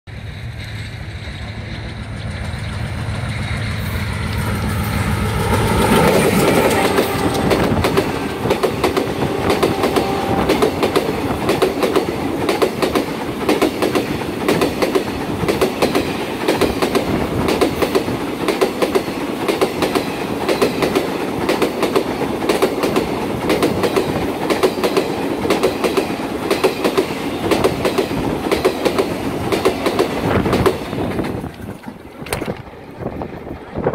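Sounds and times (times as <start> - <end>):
locomotive engine drone: 0.1 - 12.4
train wheels clattering on rail joints: 5.2 - 33.9.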